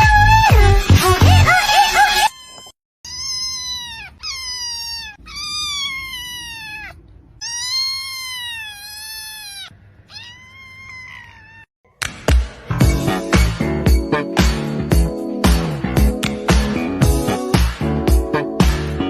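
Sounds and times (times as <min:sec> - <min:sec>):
cat meowing: 0:02.2 - 0:11.7.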